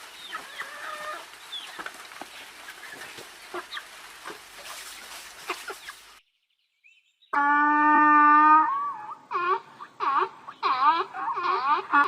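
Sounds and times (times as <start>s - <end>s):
chickens clucking: 0.0s - 6.2s, 9.0s - 12.0s
background hiss: 0.0s - 7.1s.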